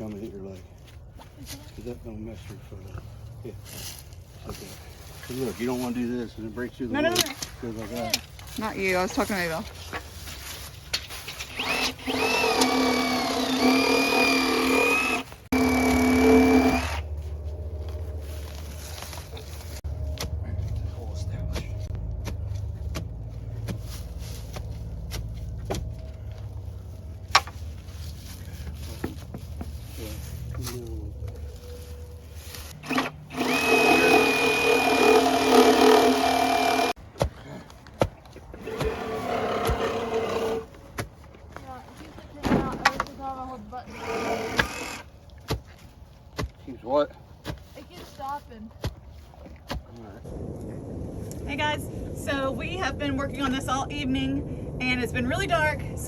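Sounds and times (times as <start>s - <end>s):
power drill boring through wood: 11.5s - 17.0s, 32.8s - 37.0s, 38.6s - 40.7s, 43.9s - 45.1s.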